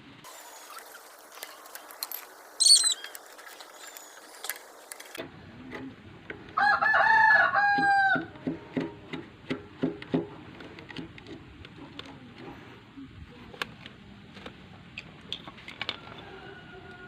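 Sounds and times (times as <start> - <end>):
rooster crowing: 6.6 - 8.4, 16.0 - 17.0.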